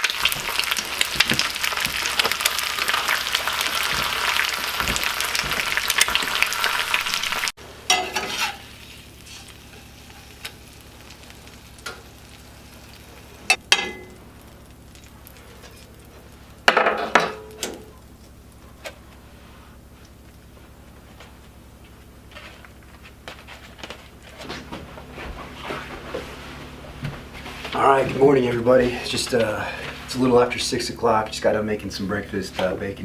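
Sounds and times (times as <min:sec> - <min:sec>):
bacon sizzling in a frying pan: 0:00.0 - 0:18.6.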